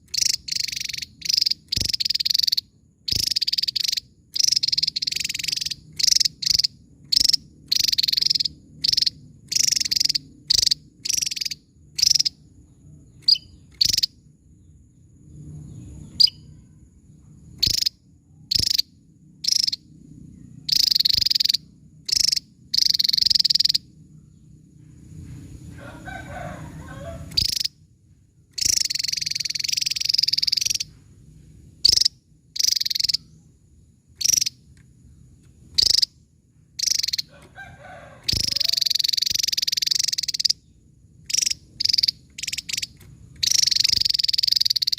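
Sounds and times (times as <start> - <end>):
bird harsh buzzy song: 0.0 - 44.9.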